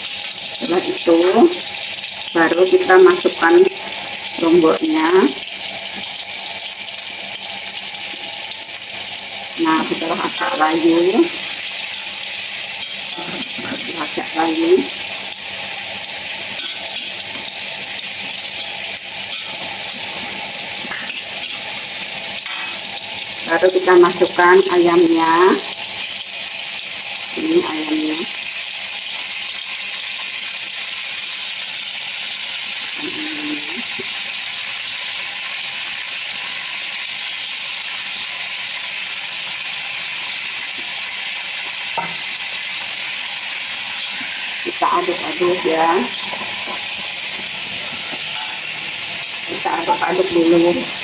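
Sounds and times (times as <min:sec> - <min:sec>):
aromatics sizzling in hot oil: 0:00.0 - 0:51.0
spatula scraping and tapping: 0:19.3 - 0:21.6, 0:46.2 - 0:48.6.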